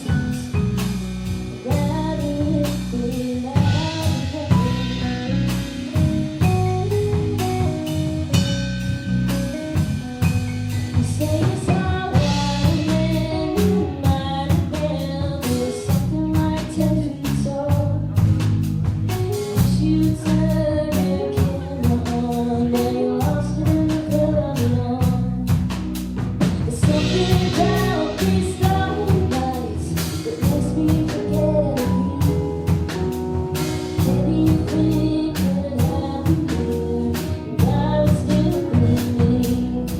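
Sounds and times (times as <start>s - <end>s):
live band playing: 0.0s - 39.9s
person singing: 1.6s - 7.6s, 10.9s - 18.3s, 19.3s - 25.4s, 26.6s - 32.6s, 34.0s - 39.9s.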